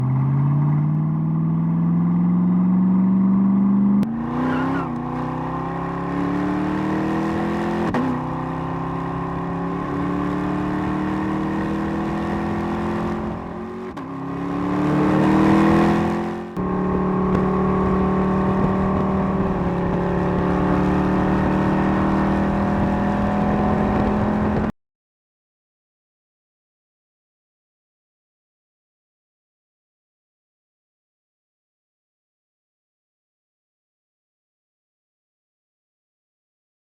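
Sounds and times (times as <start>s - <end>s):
car engine accelerating hard: 0.0s - 24.7s.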